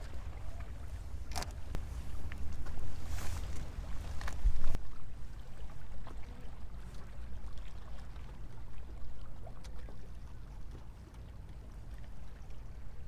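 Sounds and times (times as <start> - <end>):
wind rumbling on microphone: 0.0 - 7.5
waves lapping against stone wall: 0.0 - 13.0.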